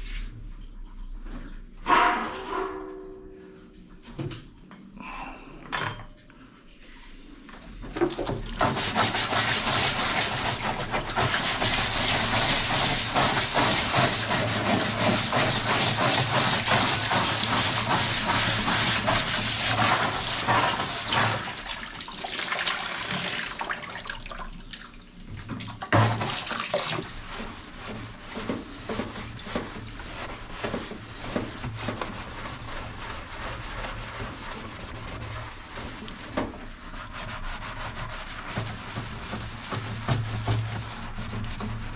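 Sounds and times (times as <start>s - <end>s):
toothbrush scrubbing plastic: 8.4s - 21.6s, 26.0s - 41.9s.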